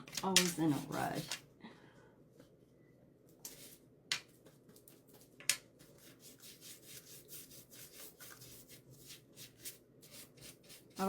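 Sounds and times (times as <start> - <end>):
paintbrush scrubbing on wood: 5.9 - 11.0.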